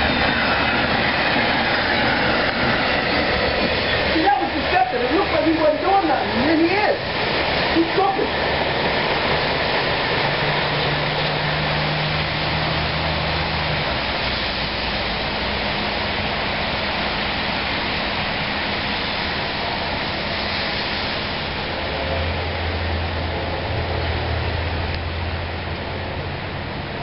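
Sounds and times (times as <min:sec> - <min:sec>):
diesel locomotive engine: 0:00.0 - 0:27.0
rain hiss: 0:00.0 - 0:27.0
train rolling: 0:00.0 - 0:27.0.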